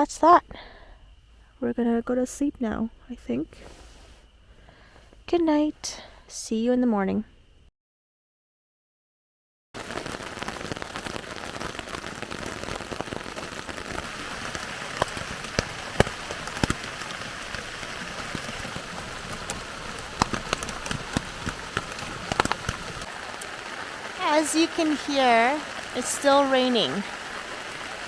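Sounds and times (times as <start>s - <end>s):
louder raindrops: 9.8s - 28.0s
rain falling on a tent: 9.8s - 28.0s.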